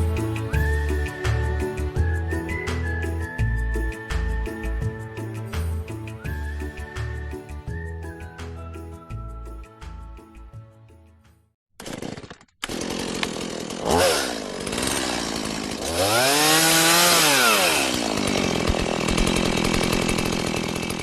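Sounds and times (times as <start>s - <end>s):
small motorcycle engine revving: 12.7s - 21.0s.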